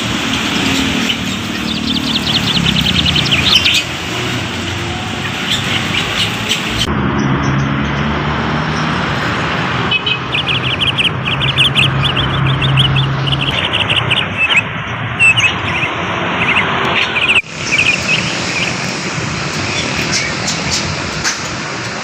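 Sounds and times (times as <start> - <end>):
steady background noise: 0.0 - 22.0
bird calling in sharp notes: 9.9 - 18.9.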